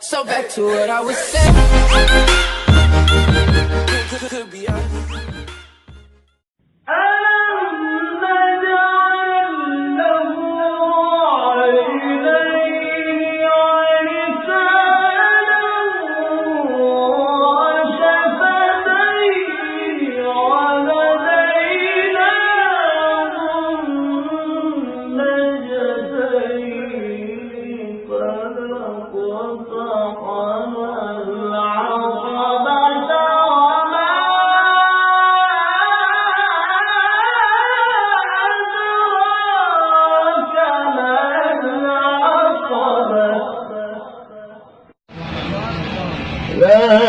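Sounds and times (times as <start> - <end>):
young person reciting melodically: 0.0 - 1.7.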